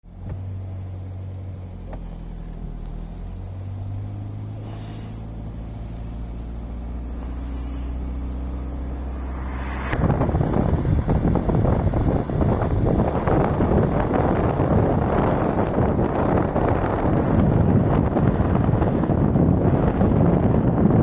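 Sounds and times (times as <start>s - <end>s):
engine humming: 0.0s - 21.0s
wind buffeting microphone: 7.9s - 21.0s.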